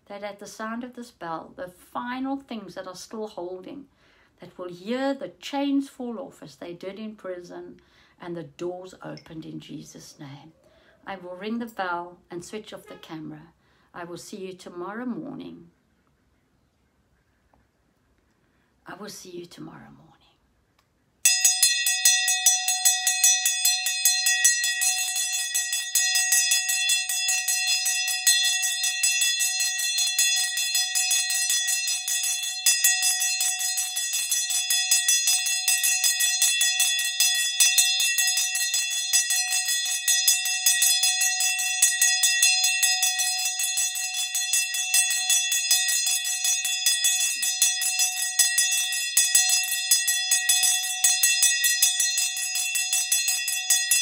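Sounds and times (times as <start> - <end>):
hand bell ringing rapidly: 21.3 - 54.0.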